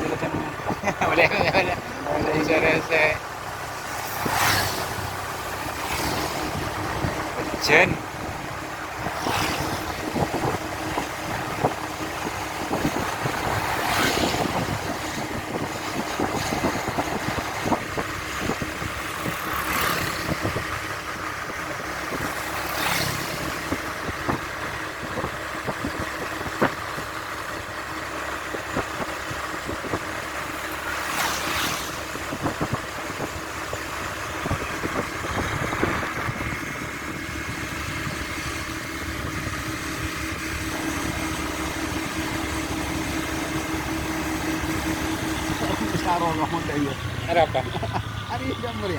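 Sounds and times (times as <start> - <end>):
wind buffeting microphone: 0.0 - 30.5, 31.9 - 47.3
vehicle and road noise: 0.0 - 48.9
brief whooshes: 4.1 - 5.0.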